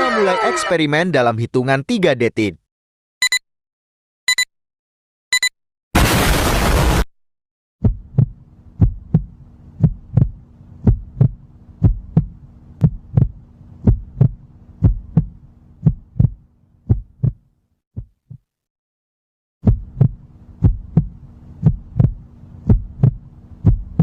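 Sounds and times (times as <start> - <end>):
heartbeat thumps: 7.8 - 17.4, 18.0 - 18.5, 19.6 - 24.0
low steady hum: 7.8 - 17.4, 19.7 - 24.0.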